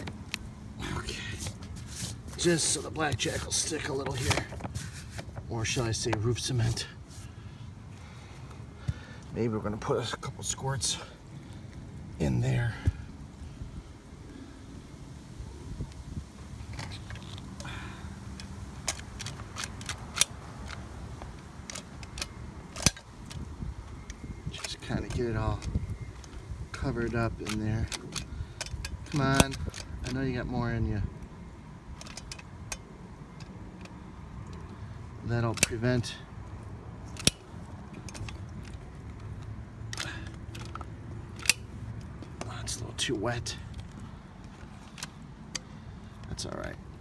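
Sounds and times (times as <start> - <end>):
caulking gun clicks: 18.4 - 26.4, 27.1 - 30.2, 37.1 - 42.4.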